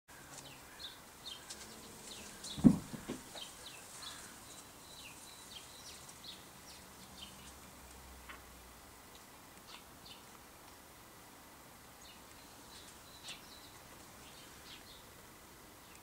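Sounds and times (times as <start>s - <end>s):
small birds chirping: 0.1s - 10.9s, 11.8s - 16.0s
dull thump: 2.5s - 3.4s
soft knocks: 2.5s - 3.5s.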